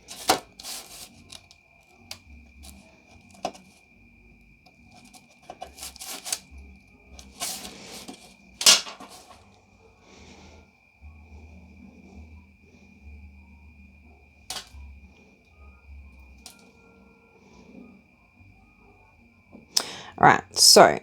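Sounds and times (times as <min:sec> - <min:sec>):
scalpel scraping fondant: 0:00.0 - 0:01.5, 0:04.9 - 0:06.4, 0:07.2 - 0:09.4.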